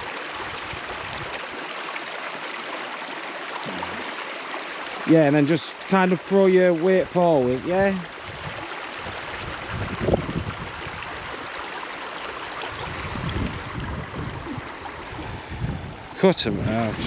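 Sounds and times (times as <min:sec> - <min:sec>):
water rushing over rocks: 0:00.0 - 0:17.0
wind buffeting microphone: 0:07.7 - 0:11.4, 0:12.7 - 0:17.0.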